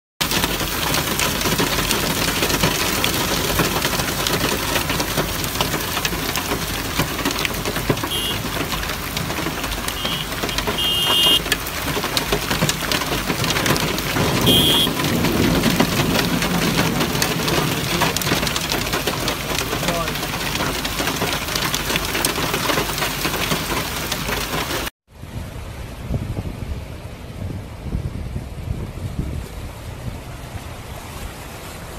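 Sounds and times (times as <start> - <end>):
heavy rain pouring: 0.2 - 31.9
low thunder rumble: 12.7 - 19.8.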